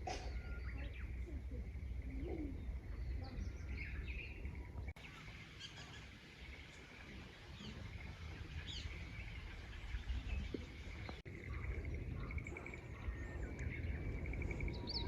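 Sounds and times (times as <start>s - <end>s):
frogs trilling and croaking: 10.6s - 15.0s.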